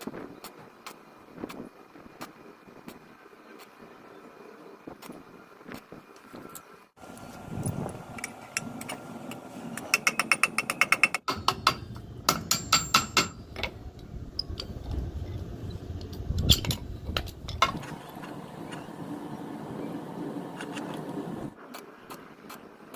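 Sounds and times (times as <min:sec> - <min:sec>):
hammer tapping on metal: 0:09.8 - 0:13.7.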